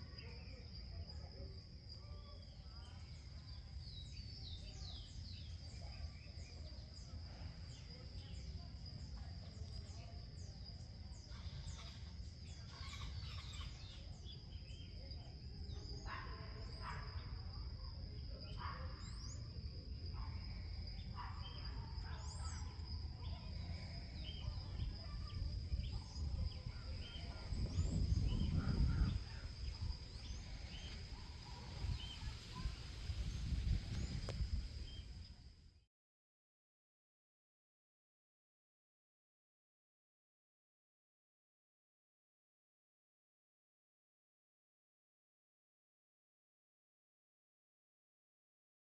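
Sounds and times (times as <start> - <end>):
birds chirping: 2.3 - 15.1
wind noise on microphone: 24.1 - 35.7.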